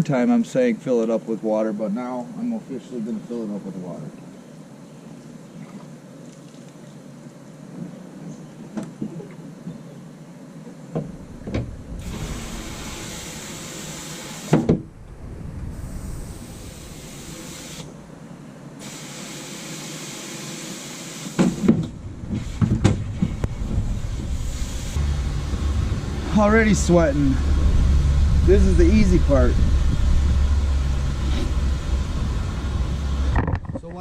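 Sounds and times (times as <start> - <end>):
water hissing into a tank: 12.0 - 14.5, 15.7 - 18.0, 18.8 - 21.4, 23.9 - 25.0.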